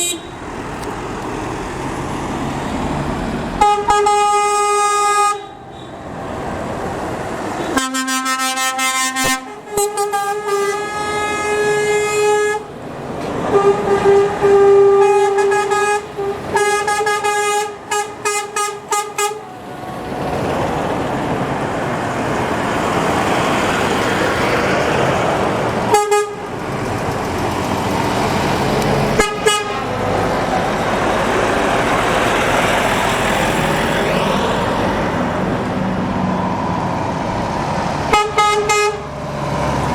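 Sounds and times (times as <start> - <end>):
truck horn blasts: 0.0 - 0.4, 3.6 - 6.1, 7.6 - 12.8, 13.4 - 19.6, 25.9 - 26.5, 29.2 - 30.2, 38.1 - 39.2
truck engines and tyres passing: 0.0 - 39.9.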